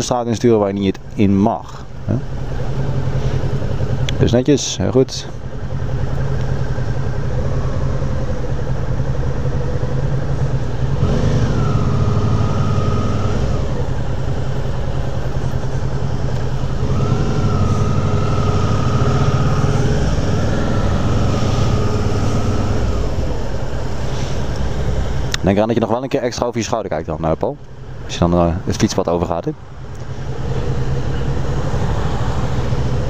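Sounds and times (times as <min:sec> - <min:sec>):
motorcycle engine revving: 0:05.4 - 0:25.4, 0:30.1 - 0:33.0.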